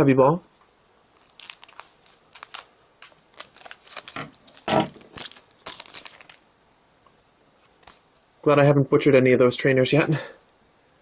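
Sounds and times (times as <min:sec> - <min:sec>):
foil wrapper crinkling and tearing: 0:01.1 - 0:06.4.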